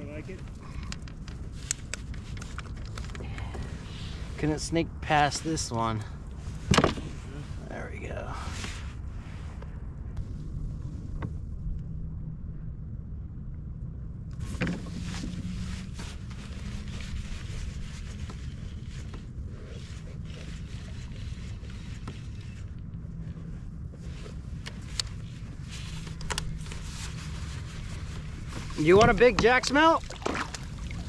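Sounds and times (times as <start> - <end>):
steady low hum: 0.0 - 31.0
wind noise: 0.0 - 31.0
water noise: 26.6 - 31.0.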